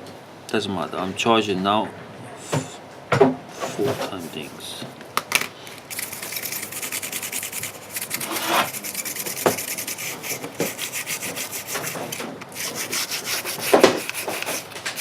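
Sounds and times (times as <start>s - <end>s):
hand tool scraping a phone: 5.9s - 15.0s.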